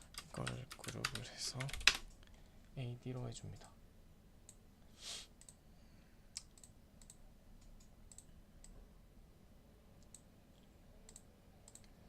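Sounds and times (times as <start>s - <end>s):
soft hiss: 4.5s - 8.7s
computer mouse clicks: 5.4s - 5.6s, 6.3s - 8.8s, 10.0s - 12.0s.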